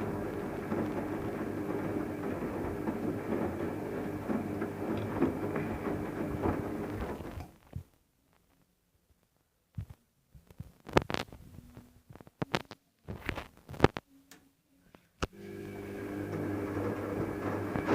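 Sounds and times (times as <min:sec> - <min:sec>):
washing machine drum knocking: 0:00.0 - 0:07.4
washing machine motor hum: 0:00.0 - 0:07.5, 0:15.4 - 0:17.9.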